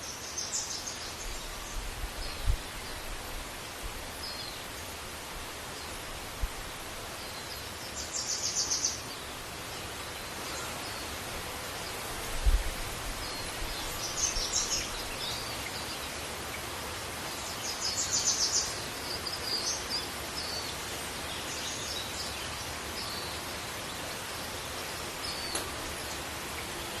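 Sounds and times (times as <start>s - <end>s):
small birds chirping: 7.1s - 27.0s.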